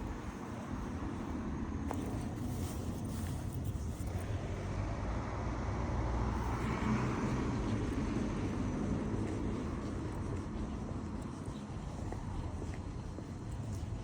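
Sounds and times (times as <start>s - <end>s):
steady low rumble: 6.2s - 14.0s.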